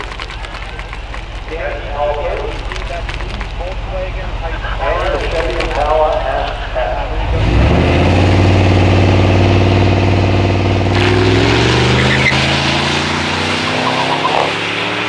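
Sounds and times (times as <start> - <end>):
racing car engine revving: 1.5 - 15.0.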